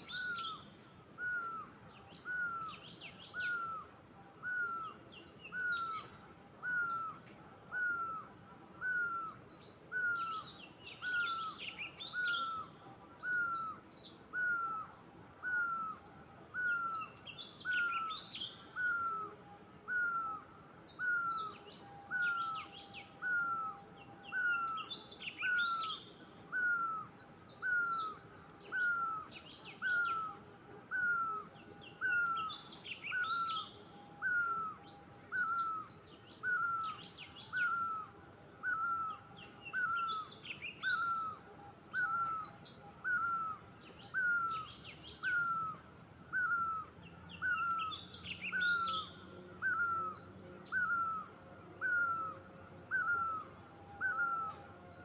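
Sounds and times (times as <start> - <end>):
bird twittering: 5.5 - 14.8, 19.9 - 22.6, 23.2 - 53.4.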